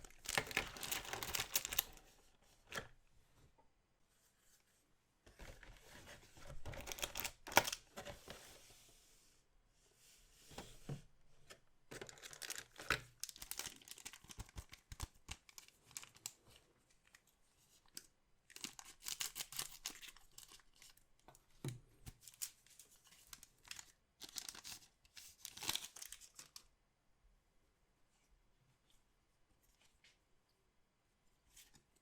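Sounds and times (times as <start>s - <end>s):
packaging being torn open: 0.1s - 2.0s, 12.1s - 16.3s, 18.5s - 20.9s.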